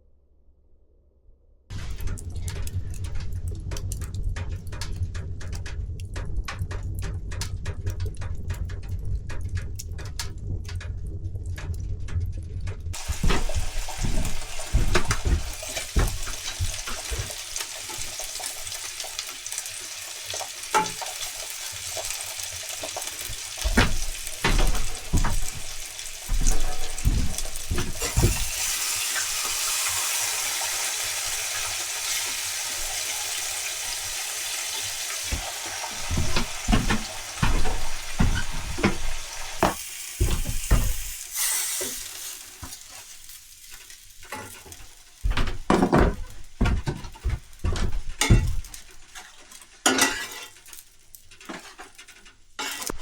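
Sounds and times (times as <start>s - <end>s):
food sizzling in a frying pan: 13.0s - 52.9s
utensil scraping a pan: 51.4s - 53.0s.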